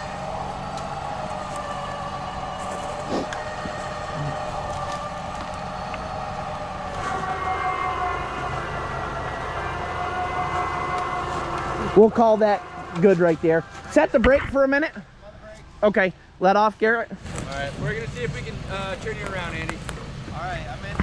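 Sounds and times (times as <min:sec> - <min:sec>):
winch whining: 0:00.0 - 0:16.4
engine humming: 0:00.0 - 0:21.0.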